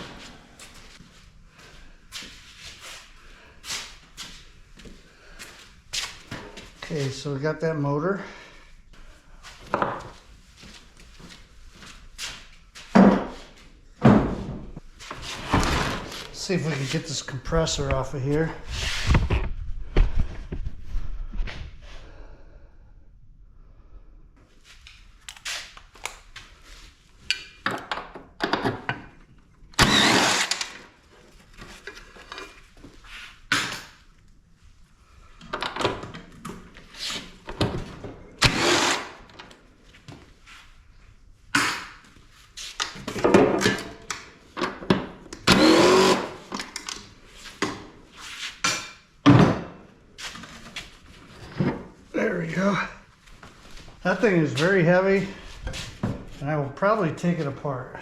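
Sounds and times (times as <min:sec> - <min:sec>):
handheld power tool bursts: 0:29.8 - 0:30.9, 0:38.4 - 0:39.3, 0:45.4 - 0:46.5.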